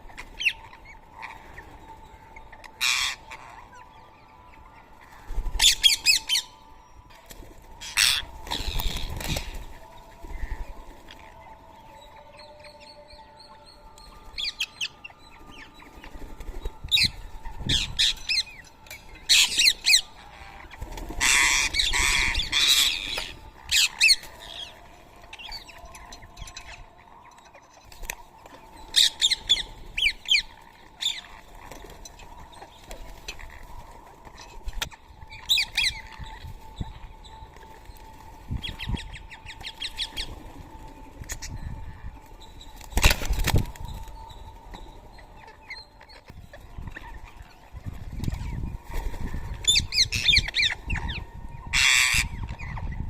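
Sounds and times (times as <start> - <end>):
parrots squawking: 21.2 - 23.0.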